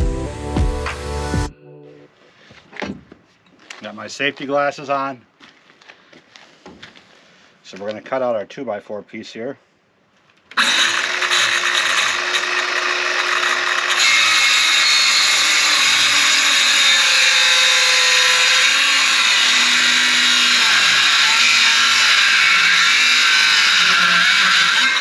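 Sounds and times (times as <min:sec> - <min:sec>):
electric power saw cutting wood: 0:10.6 - 0:25.0.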